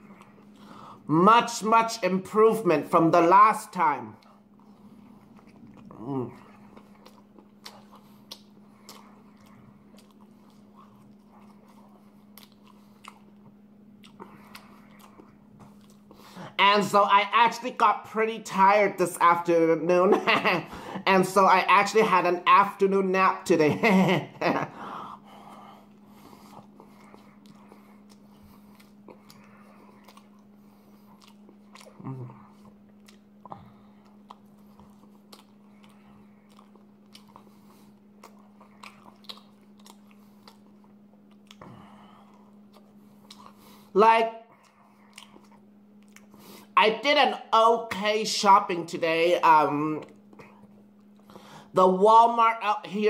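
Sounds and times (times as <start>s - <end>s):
person chewing wetly: 0.0s - 18.1s, 24.5s - 46.8s, 49.8s - 51.7s
faint low hum: 0.0s - 53.0s.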